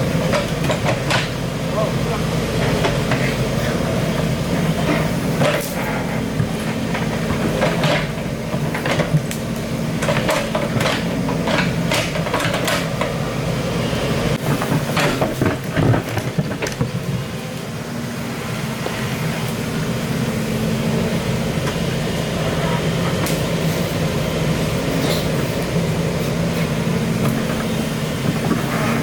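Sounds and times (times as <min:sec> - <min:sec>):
excavator engine running: 0:00.0 - 0:29.0
metallic clanks and knocks: 0:00.2 - 0:01.4, 0:04.8 - 0:09.4, 0:10.0 - 0:13.2.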